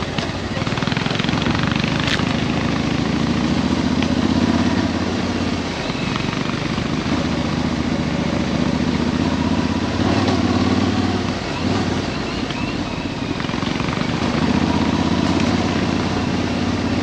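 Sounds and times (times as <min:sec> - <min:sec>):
motorcycle engine running: 0:00.0 - 0:17.0
wind and riding noise: 0:00.0 - 0:17.0.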